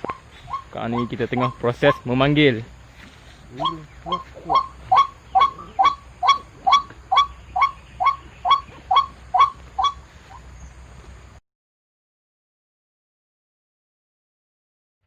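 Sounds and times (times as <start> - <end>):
waterhen wak call: 0.0 - 2.0, 3.4 - 10.5.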